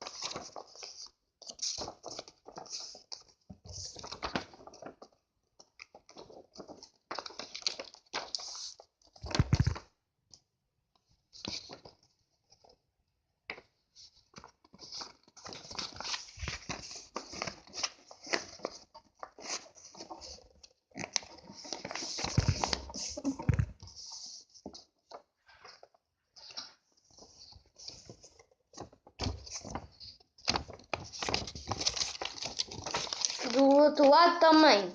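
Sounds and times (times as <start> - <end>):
paper rustling and crinkling: 0.0 - 9.9, 11.1 - 12.8, 13.5 - 34.7.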